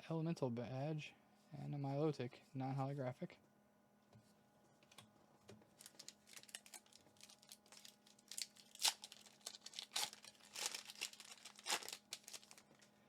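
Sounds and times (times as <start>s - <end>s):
foil wrapper crinkling: 5.7s - 12.9s.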